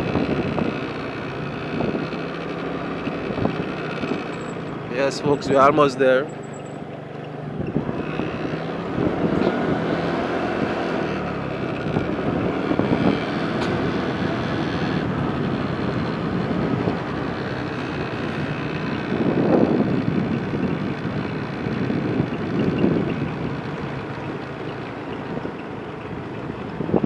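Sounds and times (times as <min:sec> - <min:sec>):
wind rushing on microphone: 0:00.0 - 0:00.9, 0:07.5 - 0:24.4, 0:25.1 - 0:27.0
road noise: 0:00.0 - 0:27.0
vehicle engine running: 0:00.0 - 0:27.0.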